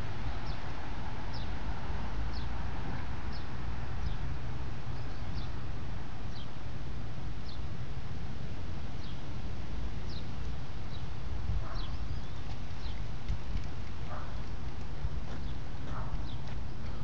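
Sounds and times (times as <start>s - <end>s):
wind rumble on microphone: 0.0s - 6.4s, 9.9s - 17.0s.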